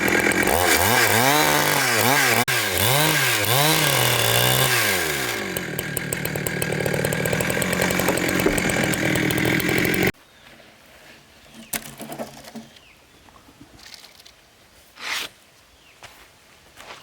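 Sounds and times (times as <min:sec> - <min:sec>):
power saw cutting timber: 0:00.0 - 0:10.2.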